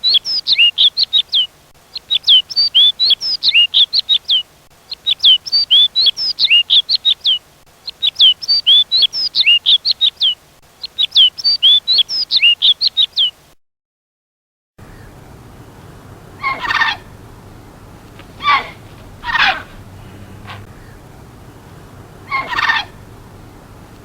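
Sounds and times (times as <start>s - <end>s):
songbird whistled chirps: 0.0s - 13.4s, 16.2s - 17.1s, 18.4s - 21.0s, 21.6s - 23.6s.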